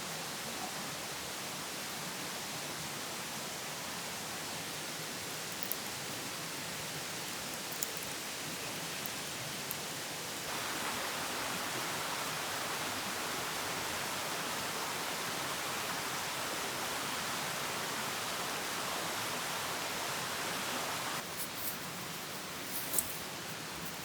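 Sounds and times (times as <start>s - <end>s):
steady rushing hiss: 1.4s - 24.0s.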